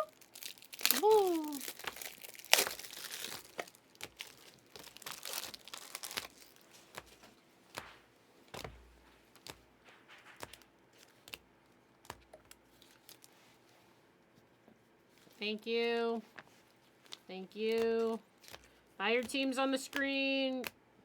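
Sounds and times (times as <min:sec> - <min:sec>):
wrappers crinkling and tearing: 0:00.0 - 0:13.7, 0:15.9 - 0:20.7
cards clicking and tapping: 0:06.8 - 0:13.0, 0:16.3 - 0:20.8.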